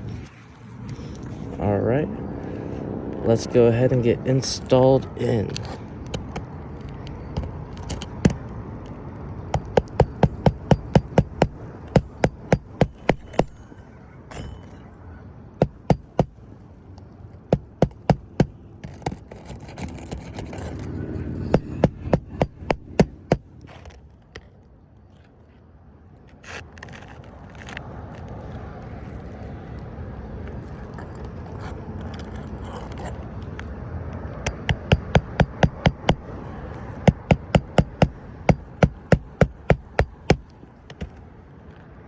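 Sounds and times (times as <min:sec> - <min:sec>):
hammer striking roofing nails: 0:06.1 - 0:06.5, 0:07.4 - 0:08.5, 0:09.6 - 0:13.7, 0:15.6 - 0:16.4, 0:17.5 - 0:19.2, 0:21.4 - 0:23.5, 0:34.5 - 0:41.2.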